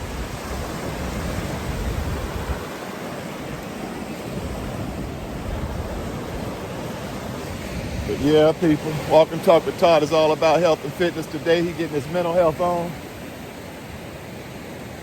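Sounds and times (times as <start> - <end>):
wind on microphone: 0.0 - 11.0
ocean surf washing: 0.0 - 15.0.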